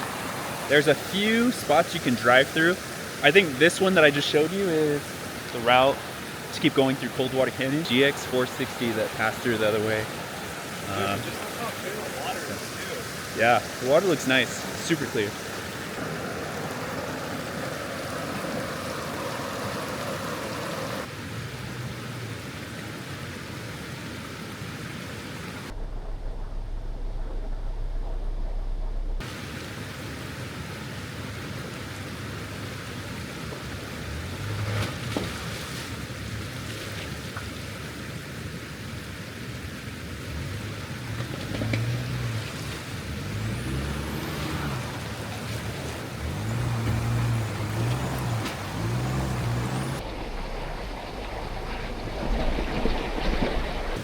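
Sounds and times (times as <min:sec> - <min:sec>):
steady hiss: 0:00.0 - 0:21.1
creek water rushing: 0:00.0 - 0:25.8, 0:29.2 - 0:54.0
car engine running: 0:40.6 - 0:52.2.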